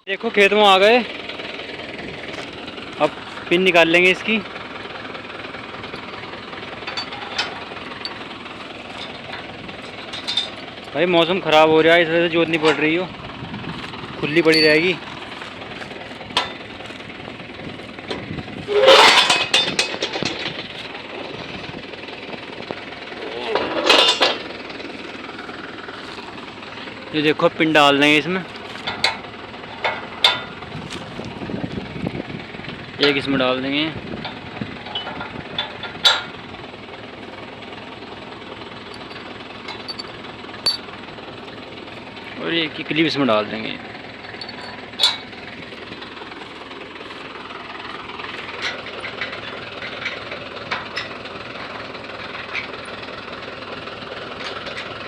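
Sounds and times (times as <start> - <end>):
tractor engine idling: 0.0 - 55.0
metal clanks and rattles: 0.8 - 32.0, 34.2 - 36.5, 37.4 - 55.0
sharp metal clank: 14.3 - 15.0, 18.7 - 20.5, 39.0 - 40.9.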